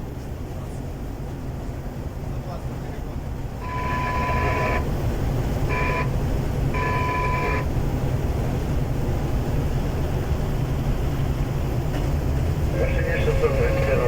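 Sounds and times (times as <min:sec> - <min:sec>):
diesel train rumble: 0:00.0 - 0:14.0
high steady tone: 0:03.6 - 0:05.0, 0:05.6 - 0:07.7.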